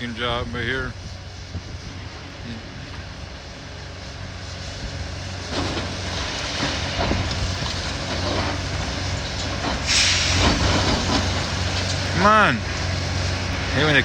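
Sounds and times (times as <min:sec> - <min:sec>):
excavator diesel engine running: 0:00.0 - 0:14.0
rubble and scrap metal crunching: 0:05.2 - 0:14.0.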